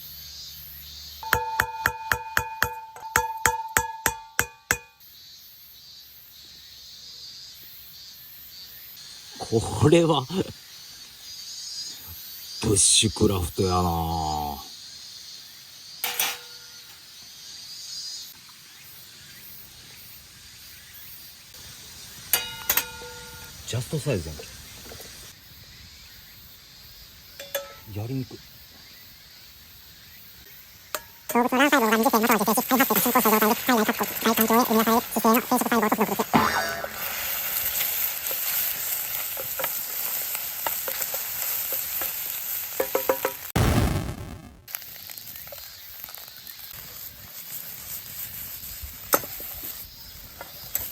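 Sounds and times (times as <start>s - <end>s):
ringing taps: 1.2s - 5.0s, 27.4s - 27.8s
food sizzling in a frying pan: 8.0s - 30.2s, 30.8s - 50.9s
metal utensil clicking on pan: 22.3s - 23.3s, 27.4s - 27.9s.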